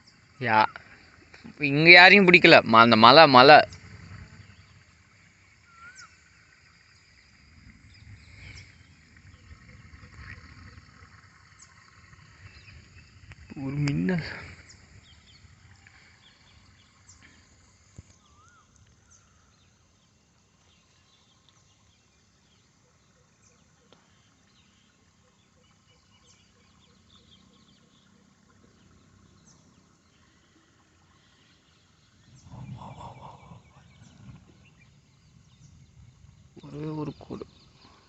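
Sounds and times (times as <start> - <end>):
high chirps of small animals: 5.6 - 6.2.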